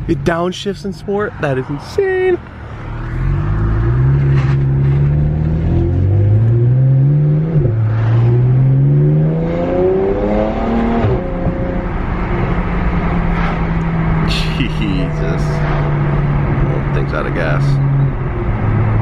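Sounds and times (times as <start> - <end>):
car engine accelerating: 1.8 - 19.0.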